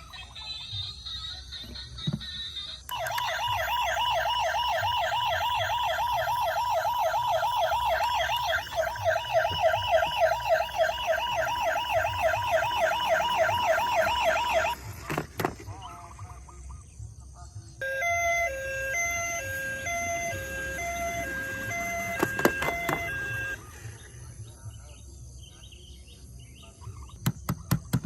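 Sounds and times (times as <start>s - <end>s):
toy electronic siren yelping: 0.0s - 15.0s, 17.8s - 23.8s.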